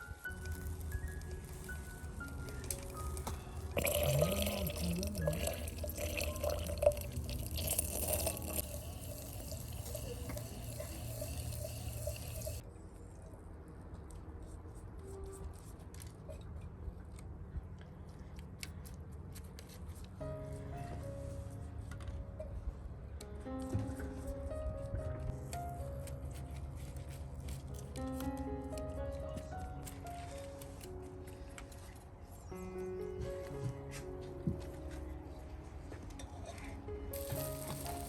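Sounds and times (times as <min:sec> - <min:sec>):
water splashing and trickling: 0:00.2 - 0:12.6, 0:37.2 - 0:38.0.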